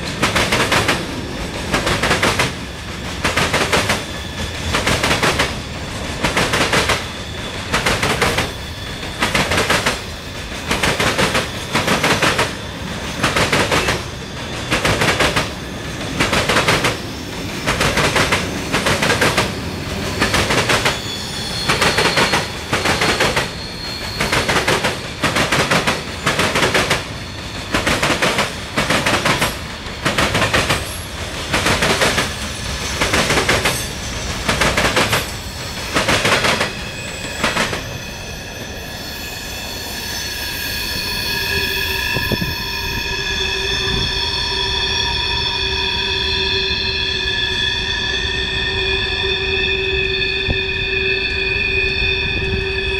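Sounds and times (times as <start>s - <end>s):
train wheels clacking on rail joints: 0.0s - 38.0s.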